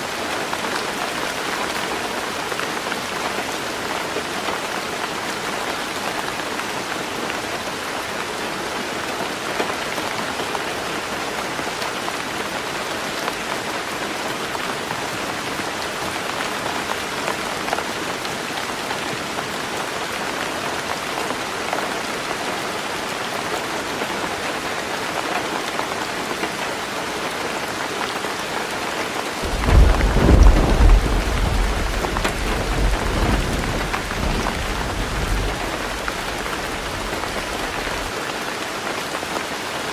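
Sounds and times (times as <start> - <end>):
heavy rain on a roof: 0.0 - 39.9
deep rumble of thunder: 29.4 - 38.1.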